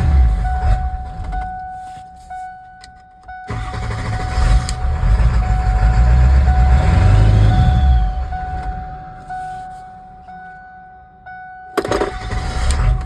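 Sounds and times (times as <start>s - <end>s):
diesel engine stalling and restarting: 3.5s - 8.8s.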